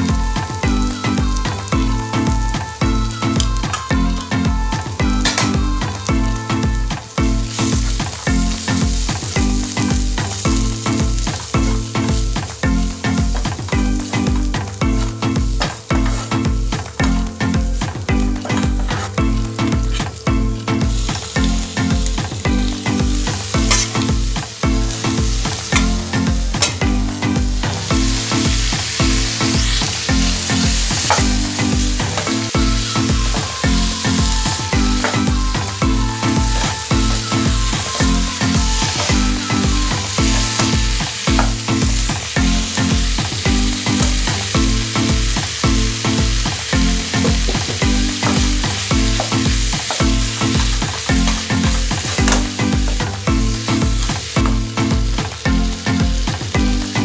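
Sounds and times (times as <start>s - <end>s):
background music with low beat: 0.0s - 57.0s
food sizzling in a pan: 0.0s - 57.0s
spatula stirring: 23.2s - 26.9s, 27.6s - 35.8s.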